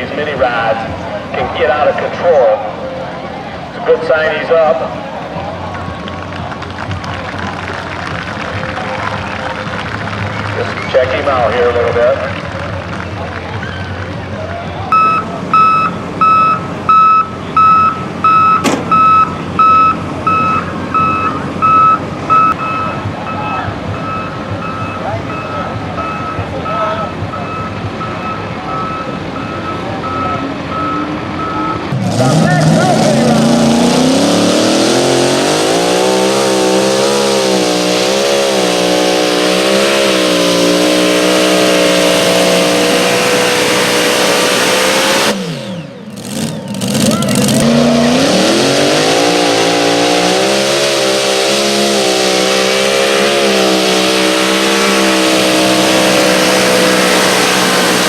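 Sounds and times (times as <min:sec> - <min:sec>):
pulling engine at high revs: 0:00.0 - 0:58.0
vehicle back-up alarm beeping: 0:14.8 - 0:32.3.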